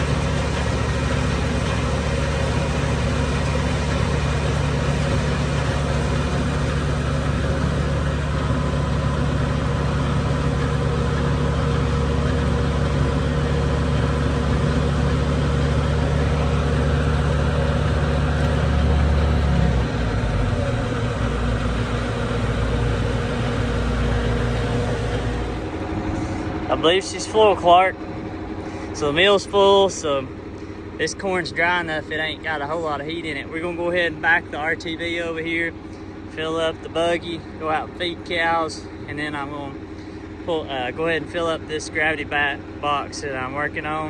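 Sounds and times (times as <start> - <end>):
feed mill grinding corn: 0.0 - 30.7
diesel engine droning: 0.0 - 44.0.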